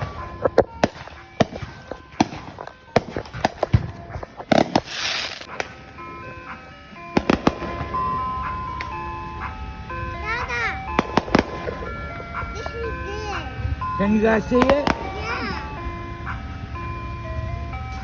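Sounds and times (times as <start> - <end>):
firecrackers banging: 0.0 - 18.0
hissing crackle: 0.4 - 5.8.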